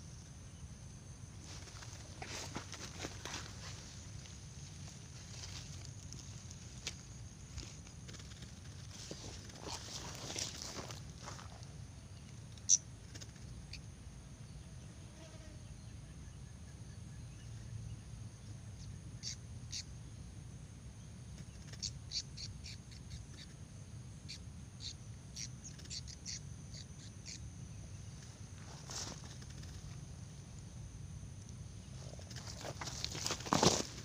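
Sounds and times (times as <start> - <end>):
high-pitched bird chip calls: 19.2 - 19.9, 21.5 - 23.6, 24.2 - 27.4.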